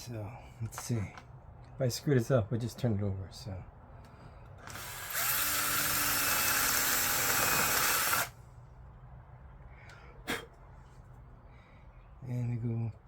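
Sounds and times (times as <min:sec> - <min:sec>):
power drill boring wood: 0:04.6 - 0:08.3.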